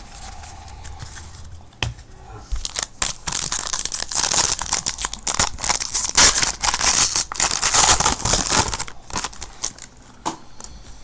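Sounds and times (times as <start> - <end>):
wrapper tearing and crinkling: 2.6 - 9.9.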